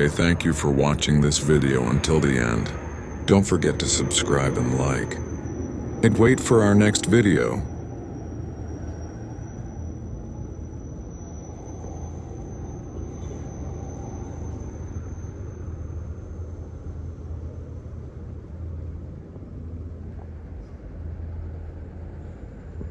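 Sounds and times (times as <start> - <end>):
vehicle engines rumbling: 0.0 - 9.6.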